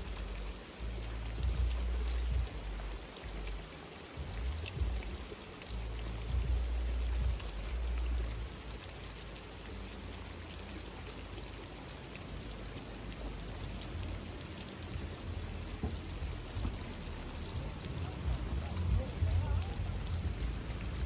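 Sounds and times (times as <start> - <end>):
low rumble: 0.0 - 8.7, 12.4 - 21.0
water pattering and splashing: 0.0 - 21.0.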